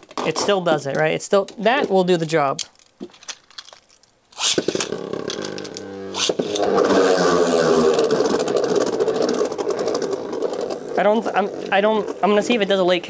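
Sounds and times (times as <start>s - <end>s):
spinning tops clashing and rattling: 2.2s - 6.8s
spinning tops whirring: 4.4s - 12.7s.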